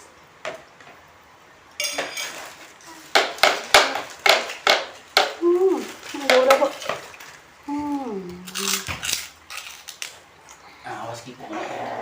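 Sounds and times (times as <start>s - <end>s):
spoon clinking against dish: 1.8s - 2.4s.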